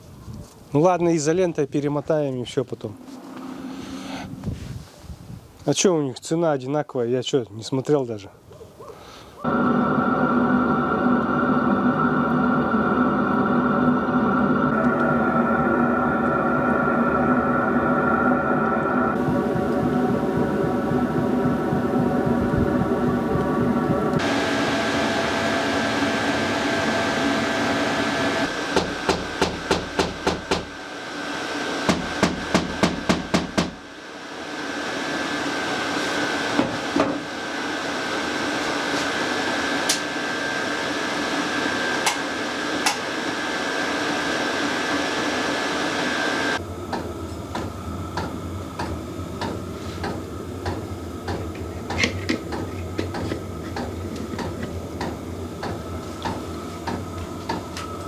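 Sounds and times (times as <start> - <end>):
steady noise with high tone: 9.5 - 31.9
hammer blows: 19.2 - 30.8.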